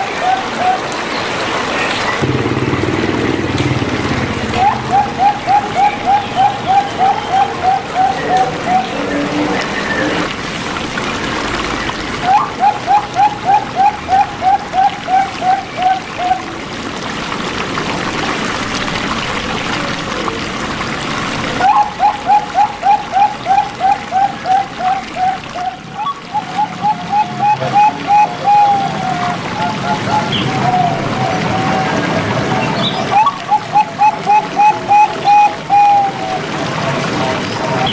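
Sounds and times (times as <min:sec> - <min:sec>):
dove cooing: 0:00.0 - 0:01.0, 0:03.5 - 0:10.2, 0:12.2 - 0:16.6, 0:21.6 - 0:36.6
trickling running water: 0:00.0 - 0:37.9.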